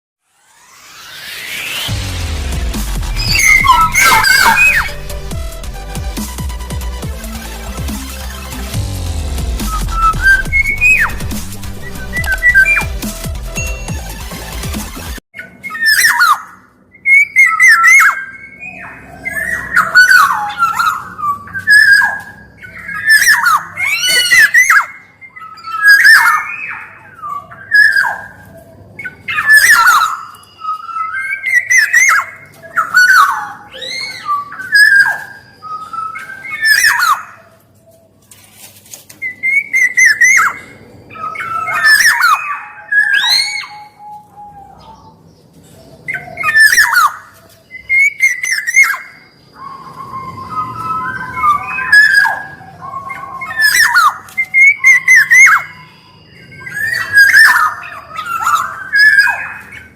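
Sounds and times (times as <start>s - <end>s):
oriole calling: 1.8s - 14.6s, 45.9s - 59.9s.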